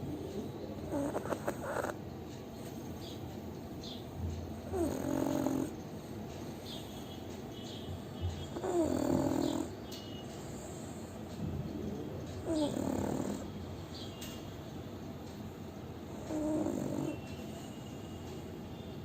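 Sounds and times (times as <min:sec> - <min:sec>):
dog snoring: 0:00.0 - 0:02.0, 0:03.8 - 0:05.8, 0:08.4 - 0:09.7, 0:12.3 - 0:13.5, 0:16.0 - 0:17.7.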